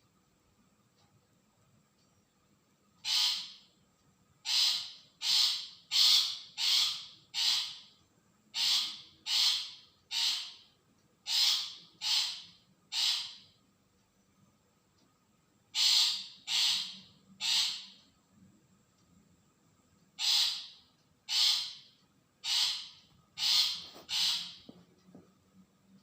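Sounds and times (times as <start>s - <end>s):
shrike harsh rasping calls: 3.0s - 3.6s, 11.3s - 13.5s, 15.8s - 18.0s, 20.2s - 24.7s.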